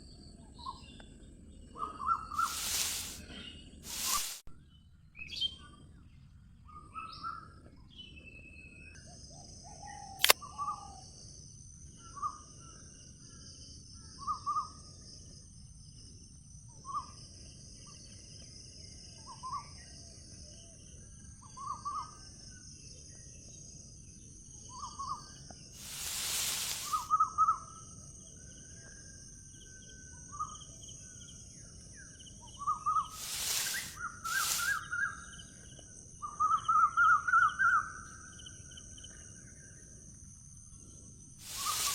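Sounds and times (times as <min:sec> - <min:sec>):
bird calling: 0:02.3 - 0:03.2, 0:33.1 - 0:34.9
steady high-pitched hiss: 0:02.3 - 0:03.2, 0:03.8 - 0:04.5, 0:25.6 - 0:27.3, 0:32.8 - 0:36.2, 0:40.8 - 0:41.9
brief rush of noise: 0:02.4 - 0:03.2, 0:03.9 - 0:04.5, 0:25.8 - 0:27.1, 0:33.2 - 0:34.8, 0:41.4 - 0:41.9.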